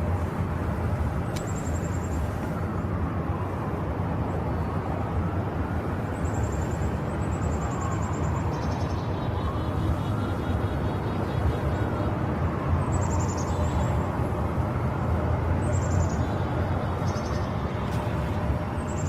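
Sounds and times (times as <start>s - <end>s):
traffic: 0.0s - 19.0s.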